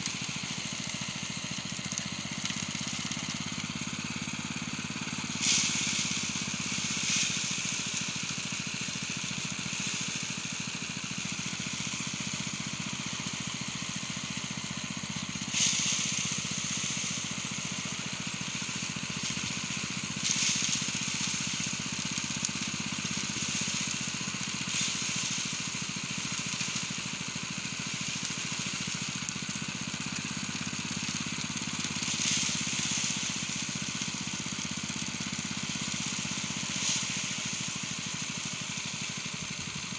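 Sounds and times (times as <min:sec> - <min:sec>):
small engine running: 0:00.0 - 0:39.9
rushing hiss: 0:04.7 - 0:39.9.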